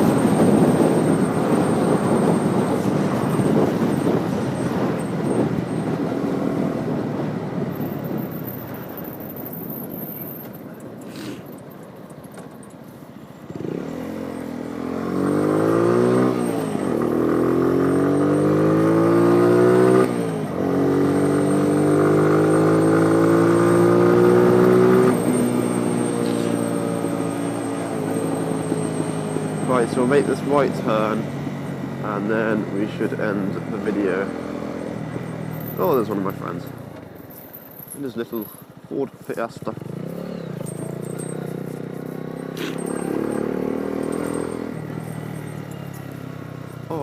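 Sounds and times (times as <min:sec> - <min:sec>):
wind and road rush: 0:00.0 - 0:47.0
motorbike engine accelerating: 0:13.5 - 0:37.0, 0:38.0 - 0:47.0.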